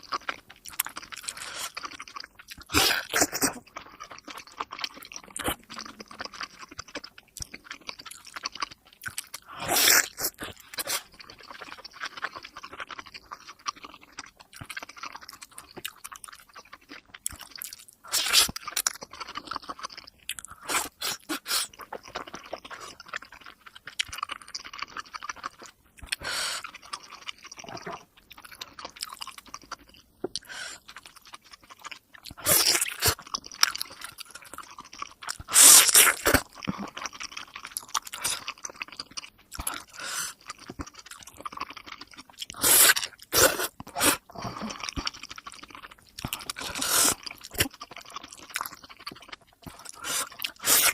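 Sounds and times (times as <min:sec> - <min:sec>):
wet chewing: 0:00.0 - 0:50.9.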